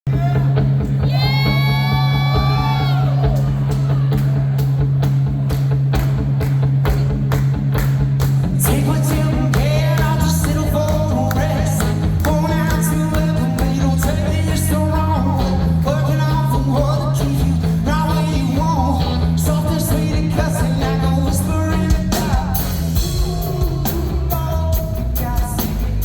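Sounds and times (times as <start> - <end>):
distorted electric guitar: 0.1 - 26.0
person singing: 8.6 - 26.0.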